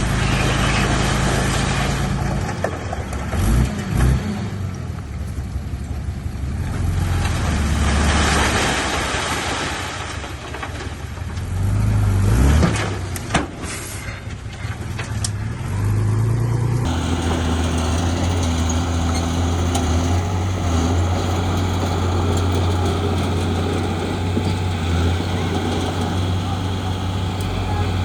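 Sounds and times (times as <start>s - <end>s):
diesel machinery engine drone: 0.0s - 28.0s.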